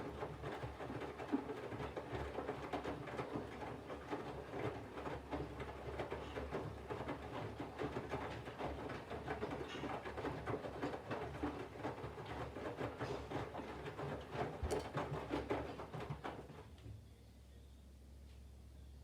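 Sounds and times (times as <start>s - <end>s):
faint low hum: 16.6s - 19.0s.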